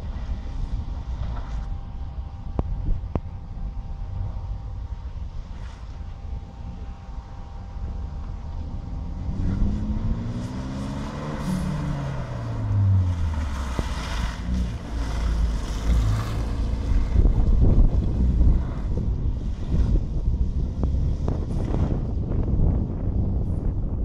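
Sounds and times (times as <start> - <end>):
car engine revving: 6.7 - 22.7.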